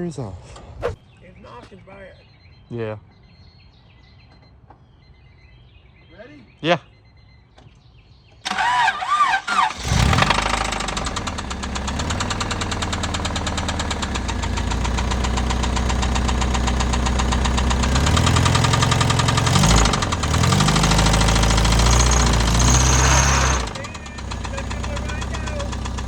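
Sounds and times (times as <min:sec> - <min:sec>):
car engine starting: 0:08.4 - 0:26.0
engine idling with rod knock: 0:10.6 - 0:26.0.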